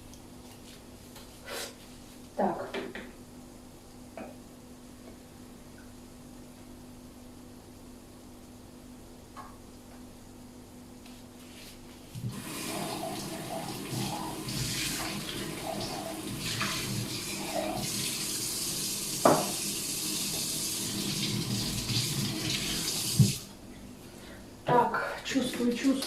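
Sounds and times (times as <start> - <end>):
water running from tap: 12.2 - 23.5
knock: 19.2 - 19.6.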